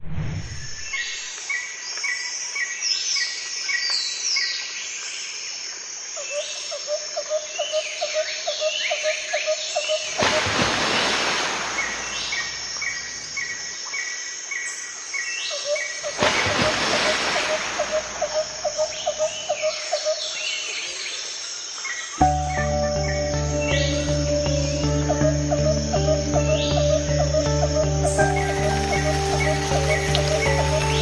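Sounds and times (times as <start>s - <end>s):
brief rush of noise: 0.0s - 1.3s
birds chirping and singing: 22.2s - 31.0s
high insect-like drone: 22.2s - 31.0s.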